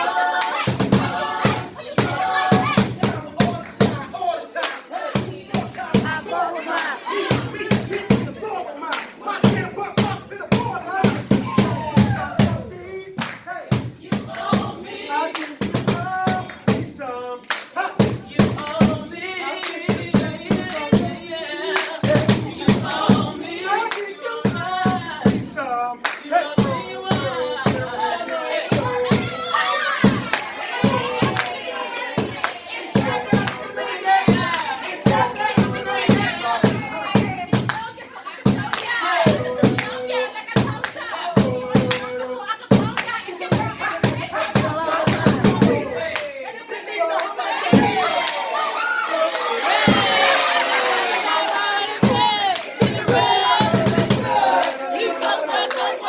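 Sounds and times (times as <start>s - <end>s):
rhythmic percussive beat: 0.0s - 46.5s, 47.1s - 48.5s, 49.3s - 56.0s
people singing and calling out: 0.0s - 56.0s
person singing: 39.0s - 47.1s, 51.0s - 56.0s.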